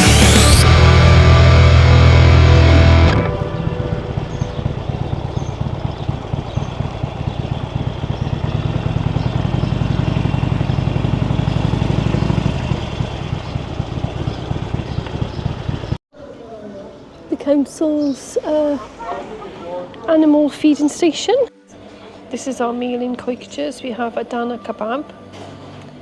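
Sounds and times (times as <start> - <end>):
motorcycle engine pulsing beat: 0.0 - 16.0.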